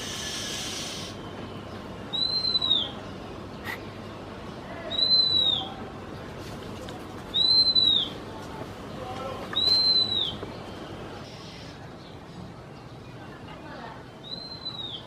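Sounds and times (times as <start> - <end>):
songbird high whistled call: 0.0 - 1.3, 2.1 - 3.0, 4.9 - 5.8, 7.3 - 8.2, 9.6 - 10.4, 14.2 - 15.0.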